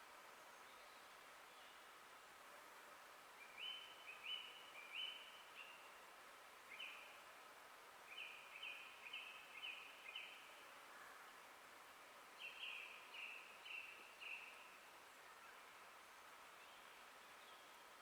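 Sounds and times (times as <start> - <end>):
background hiss: 0.0 - 18.0
songbird singing: 3.4 - 5.9, 8.1 - 11.2, 12.4 - 14.7.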